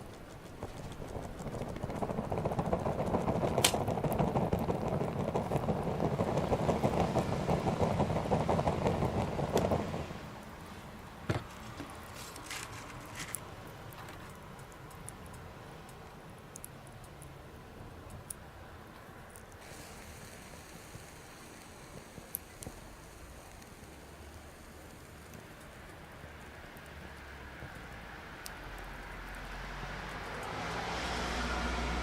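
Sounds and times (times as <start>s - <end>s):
sharp pops from fire: 0.0s - 10.0s, 19.2s - 26.9s
wood fire crackling: 0.0s - 32.0s.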